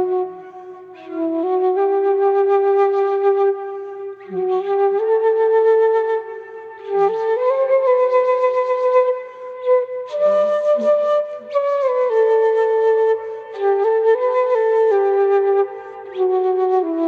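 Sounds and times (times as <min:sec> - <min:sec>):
flute playing slow melody: 0:00.0 - 0:17.0.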